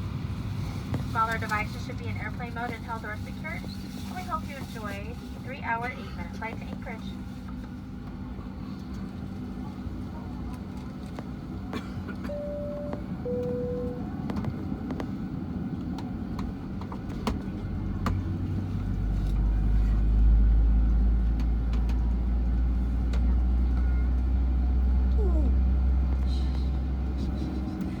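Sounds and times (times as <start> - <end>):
aircraft cabin engine drone: 0.0 - 28.0
deep low rumble: 12.3 - 28.0.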